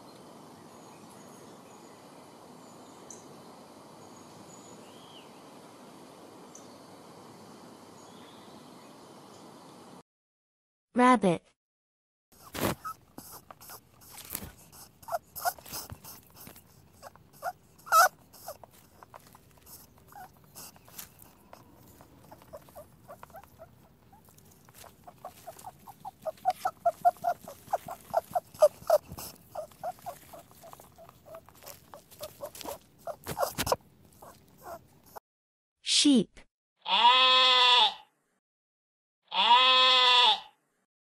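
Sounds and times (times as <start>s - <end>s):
rabbits chewing and crunching: 12.4s - 35.2s.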